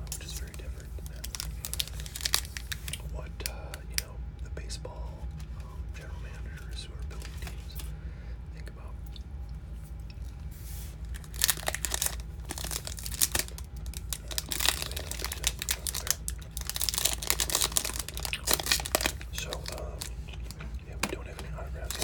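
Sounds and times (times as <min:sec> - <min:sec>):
steady low hum: 0:00.0 - 0:22.0
wrapper tearing and crinkling: 0:00.2 - 0:03.0, 0:11.0 - 0:20.1, 0:21.8 - 0:22.0.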